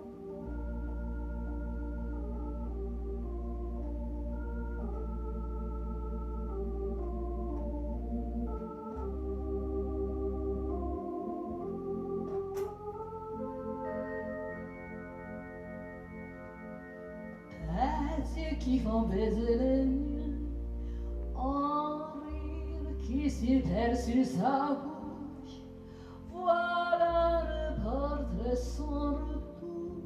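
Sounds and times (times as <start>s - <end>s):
organ keyboard playing chords: 0.0s - 30.0s
sharp click: 12.3s - 12.9s.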